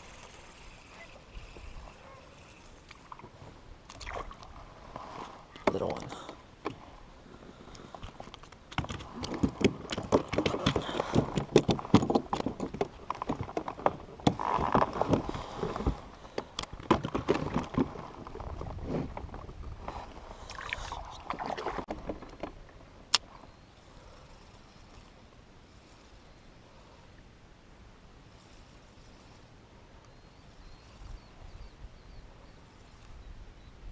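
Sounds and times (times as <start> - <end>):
knocks and clatter on a kayak: 5.5 - 7.0, 8.0 - 20.1, 21.2 - 23.0.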